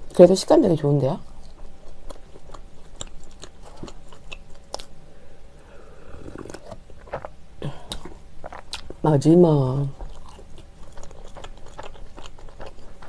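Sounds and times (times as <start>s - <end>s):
chewing soft bread: 1.2s - 9.1s, 9.8s - 13.0s
gulping milk: 5.7s - 8.8s.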